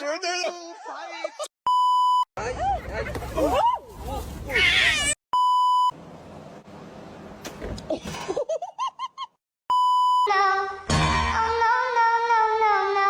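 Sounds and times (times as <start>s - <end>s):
censor bleeps: 1.7s - 2.3s, 5.4s - 5.9s, 9.7s - 10.3s.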